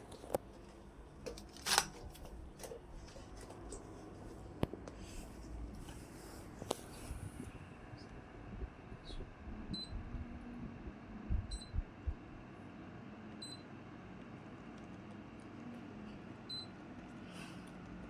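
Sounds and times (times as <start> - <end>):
air conditioner high beeps: 9.7 - 10.1, 11.4 - 11.9, 13.4 - 13.7, 16.4 - 16.8.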